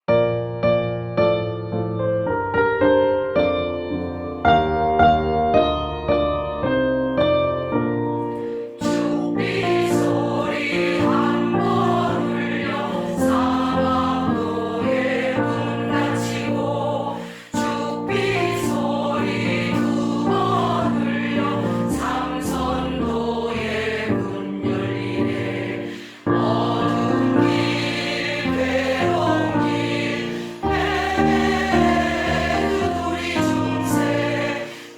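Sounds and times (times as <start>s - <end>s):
piano accompaniment: 0.0s - 34.9s
choir singing in unison: 8.4s - 34.9s.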